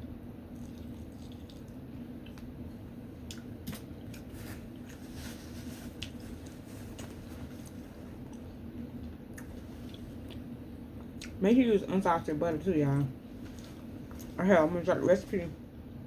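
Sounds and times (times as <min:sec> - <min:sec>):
steady low hum: 0:00.0 - 0:16.0
wet chewing sounds: 0:00.5 - 0:02.5, 0:05.9 - 0:11.4.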